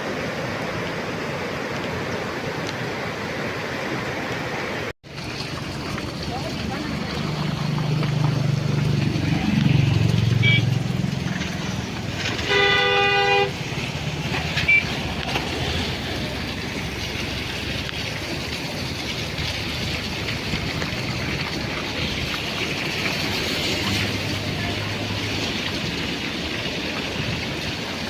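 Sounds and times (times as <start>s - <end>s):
low traffic rumble: 0.0s - 28.0s
heavy rain hiss: 6.3s - 28.0s
vehicle horn honking: 10.4s - 10.8s, 12.3s - 13.6s.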